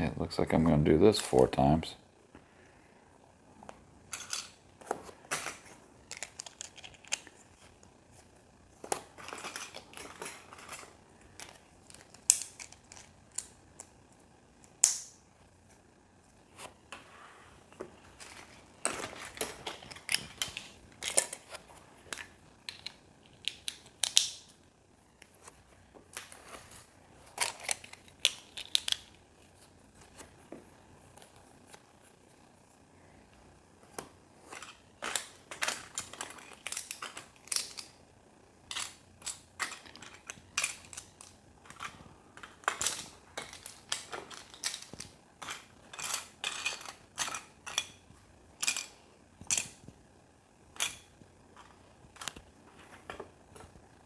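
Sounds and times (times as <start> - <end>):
plastic building pieces clicking: 5.3 - 7.3, 22.1 - 24.4, 27.4 - 29.2, 34.6 - 38.0, 38.7 - 48.0.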